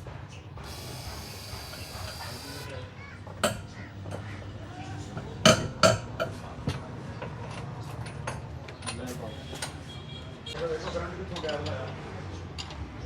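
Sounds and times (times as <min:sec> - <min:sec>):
metallic clanks of tools: 0:03.3 - 0:04.3.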